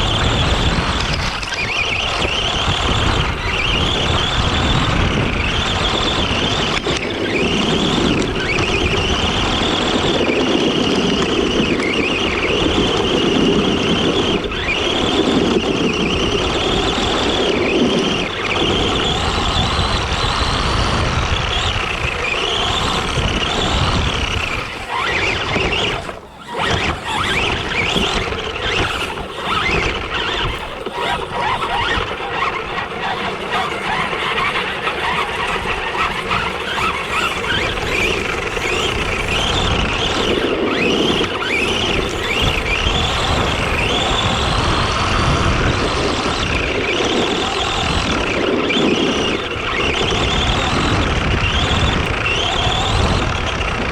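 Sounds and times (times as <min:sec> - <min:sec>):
rc truck motor whining: 0:00.0 - 0:53.9
tyres rough noise: 0:00.0 - 0:53.9.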